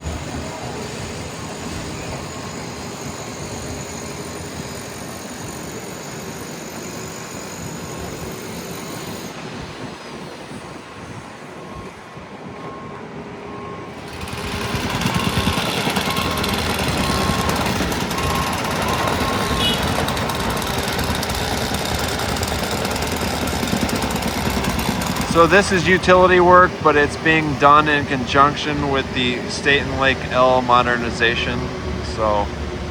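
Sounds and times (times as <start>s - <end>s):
construction machinery running: 0.0s - 32.9s
rapid pounding of tamper: 14.1s - 32.5s.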